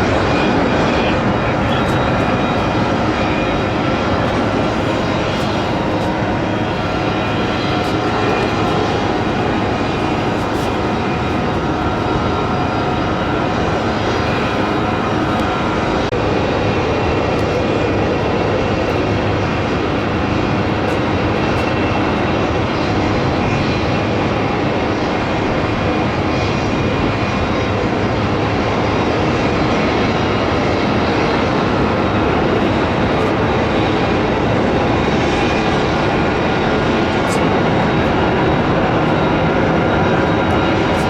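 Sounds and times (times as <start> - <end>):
jet plane landing: 0.0 - 41.0.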